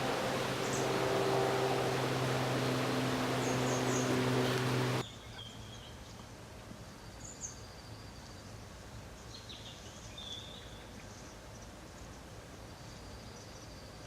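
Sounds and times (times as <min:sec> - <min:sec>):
small birds chirping: 0:00.0 - 0:05.9.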